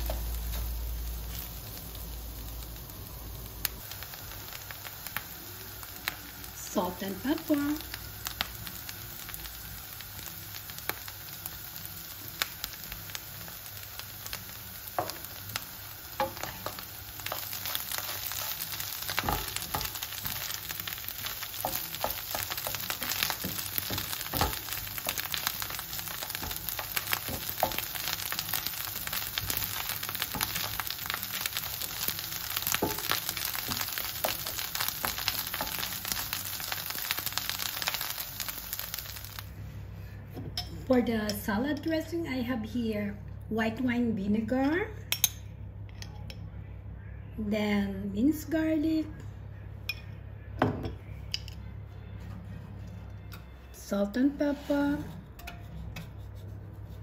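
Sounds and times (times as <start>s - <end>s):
food sizzling in frying pan: 0.0s - 39.6s
wooden spatula tapping and scraping: 21.5s - 28.3s.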